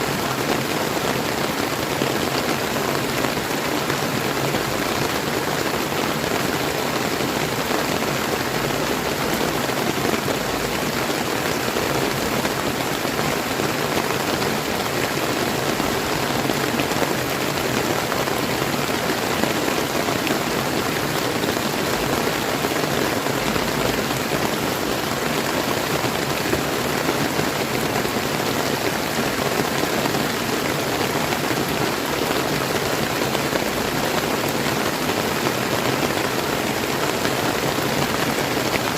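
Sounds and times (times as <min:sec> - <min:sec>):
river flowing: 0:00.0 - 0:38.9
steady rain falling: 0:00.0 - 0:38.9.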